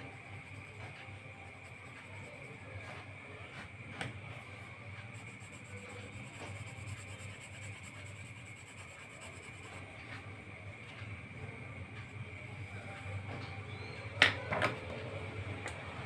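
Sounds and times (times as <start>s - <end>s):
pencil scratching on paper: 5.0s - 10.3s.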